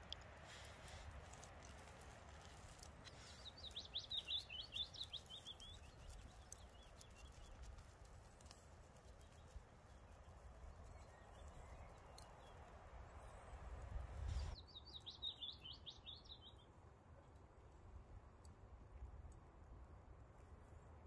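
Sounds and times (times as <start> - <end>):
outdoor rumble and hiss: 0.0 - 6.2.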